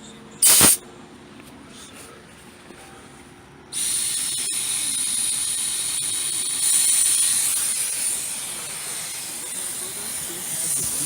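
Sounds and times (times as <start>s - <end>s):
pressurized gas hissing: 0.4s - 0.8s, 3.7s - 11.0s.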